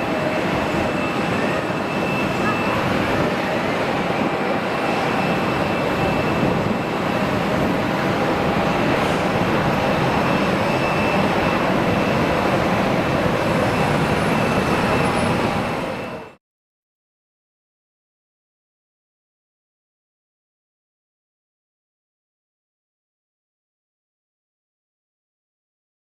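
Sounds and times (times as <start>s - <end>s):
faint high whine: 0.0s - 16.4s
jet engines running: 0.0s - 16.4s.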